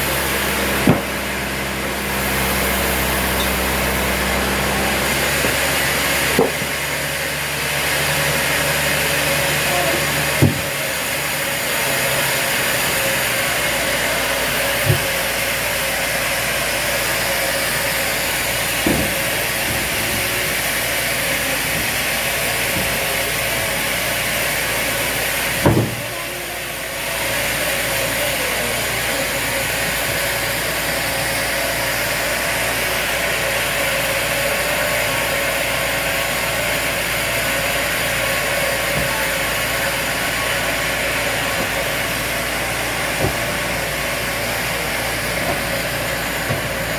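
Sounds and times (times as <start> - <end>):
sawmill machinery running: 0.0 - 46.9
sharp knocks: 0.8 - 1.4, 6.3 - 6.9, 10.4 - 10.8, 18.8 - 20.1, 25.6 - 26.1.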